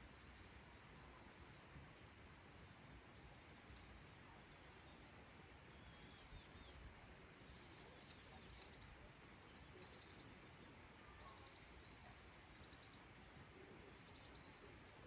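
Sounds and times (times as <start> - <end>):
soft hiss: 0.0 - 15.0
faint bird chirps and whistles: 5.7 - 14.8.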